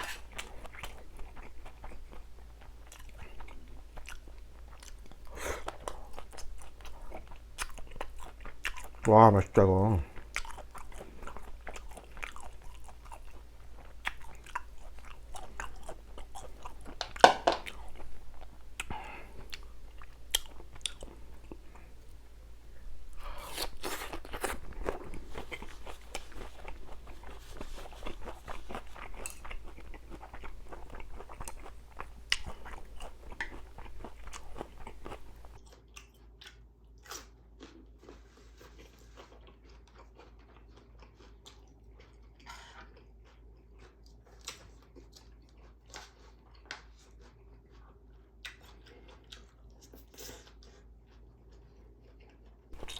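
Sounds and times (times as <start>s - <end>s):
person chewing crunchy food: 0.0s - 52.9s.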